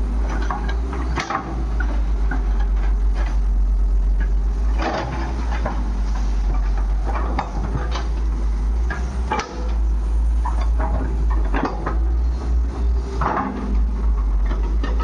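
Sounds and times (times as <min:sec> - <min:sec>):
diesel machinery rumbling: 0:00.0 - 0:15.0
metallic knocks and clanks: 0:04.2 - 0:09.8, 0:10.4 - 0:12.2.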